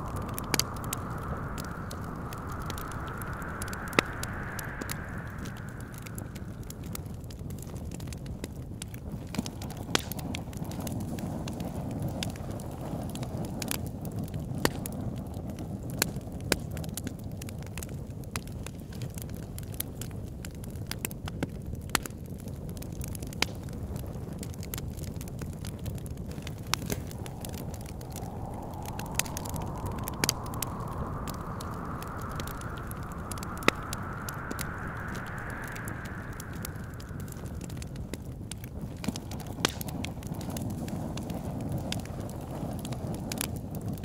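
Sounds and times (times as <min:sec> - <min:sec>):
whistling wind gust: 0:00.0 - 0:08.0, 0:25.9 - 0:43.4
low wind rumble: 0:00.0 - 0:08.4, 0:24.9 - 0:44.0
wood fire crackling: 0:00.0 - 0:14.8, 0:24.5 - 0:44.0.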